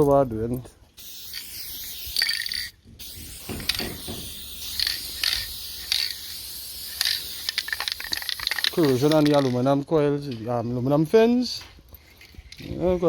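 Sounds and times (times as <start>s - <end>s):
aerosol spray hissing: 1.0s - 9.2s
handling clatter: 3.3s - 9.7s.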